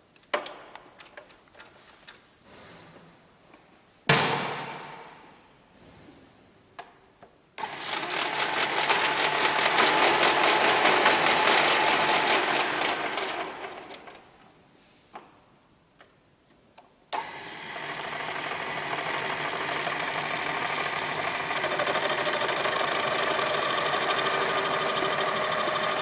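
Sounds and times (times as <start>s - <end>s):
machine rattling: 7.6s - 14.2s, 17.5s - 26.0s.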